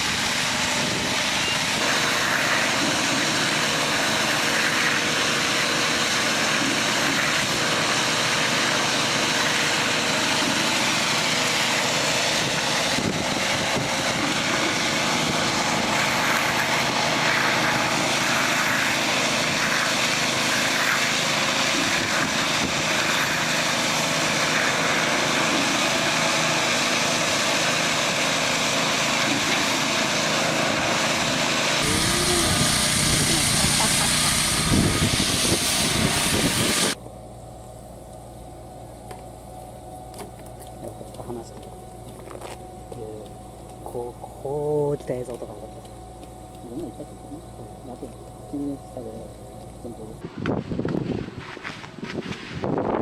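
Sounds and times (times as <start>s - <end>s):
rushing noise: 0.0s - 37.0s
engine humming: 0.0s - 53.0s.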